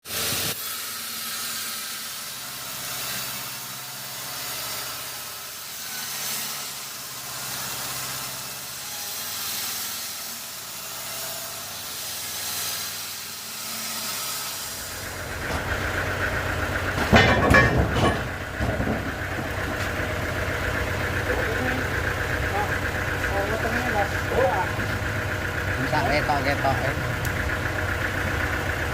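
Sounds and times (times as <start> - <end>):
sawmill machinery hiss: 0.0 - 17.0
motor whine: 0.1 - 28.9
loud knocks: 16.9 - 20.2.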